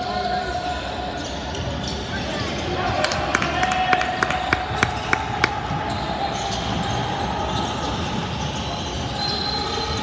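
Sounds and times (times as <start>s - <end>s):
basketball bouncing on gym floor: 3.0s - 5.6s
gym hubbub: 3.0s - 5.6s.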